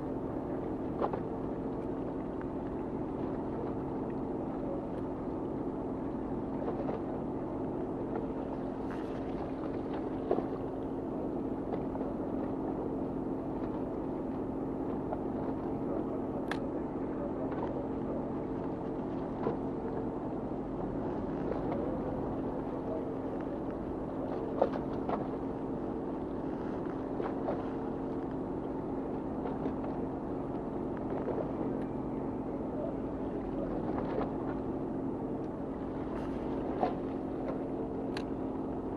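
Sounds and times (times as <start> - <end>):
boat engine humming: 0.0 - 38.9.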